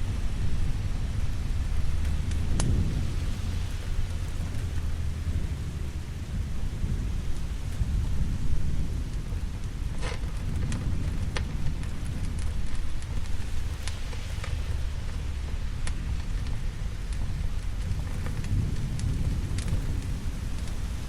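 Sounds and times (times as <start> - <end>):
sharp thunder crack: 0.0 - 13.8
steady rain: 0.0 - 21.0
thunder rumbling: 0.0 - 21.0.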